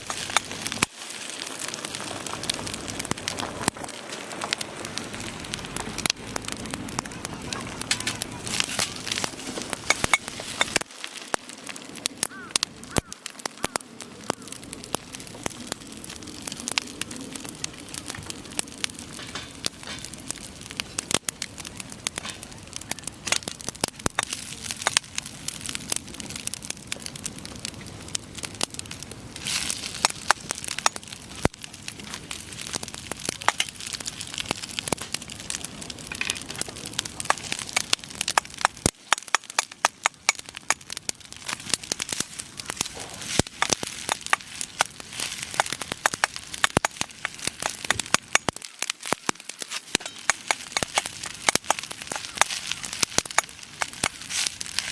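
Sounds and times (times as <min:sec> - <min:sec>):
campfire crackling: 0:00.0 - 0:54.9
firewood popping and snapping: 0:00.0 - 0:54.9.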